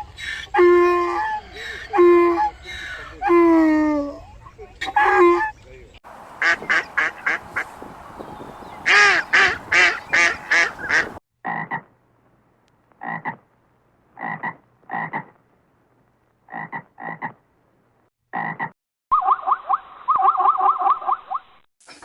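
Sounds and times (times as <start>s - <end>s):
background noise: 0.0s - 22.0s
animal calls: 4.8s - 11.8s.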